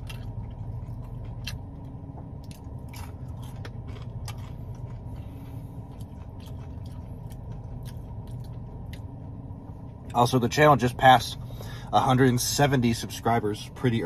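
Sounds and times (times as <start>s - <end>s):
chewing and biting food: 0.0s - 9.3s
steady low hum: 0.0s - 14.0s.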